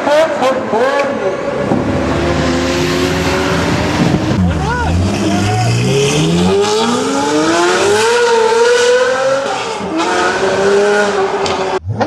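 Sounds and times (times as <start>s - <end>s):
car engine accelerating hard: 0.1s - 11.8s.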